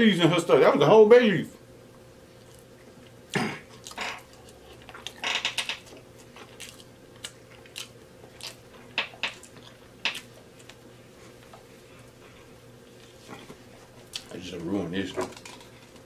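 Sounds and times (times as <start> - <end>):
man chewing with lip smacks: 1.9 - 5.2, 5.8 - 14.4.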